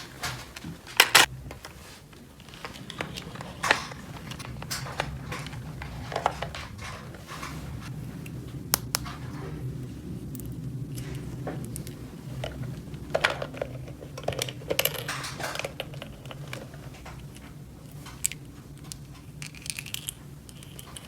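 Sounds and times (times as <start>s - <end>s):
low steady hum: 0.0s - 21.0s
plastic toy pieces clicking: 13.2s - 16.7s, 18.1s - 21.0s.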